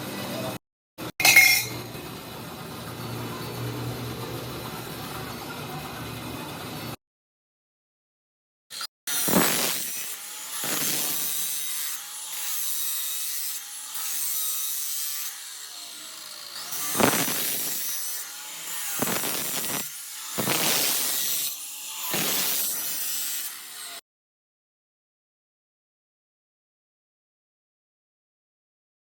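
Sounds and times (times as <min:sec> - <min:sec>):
power tool grinding: 0:08.7 - 0:24.0.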